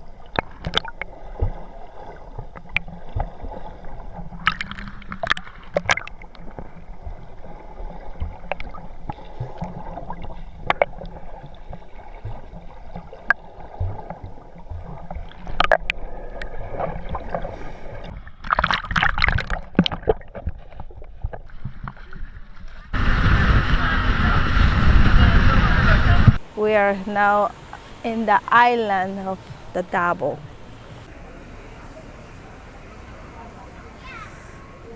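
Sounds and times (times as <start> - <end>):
water gurgling around boat: 0.0 - 34.9
steady low rumble: 22.9 - 26.6
rush of noise: 23.0 - 26.6.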